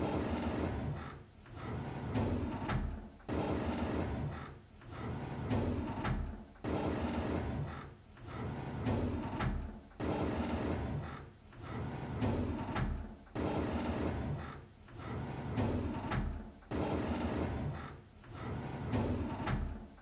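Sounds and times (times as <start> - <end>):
drawer sliding open: 18.4 - 19.8.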